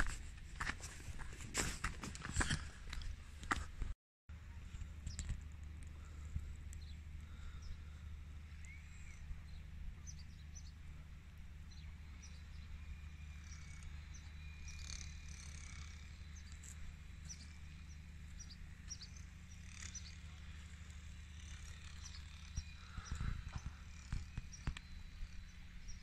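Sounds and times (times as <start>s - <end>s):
low steady rumble: 0.0s - 26.0s.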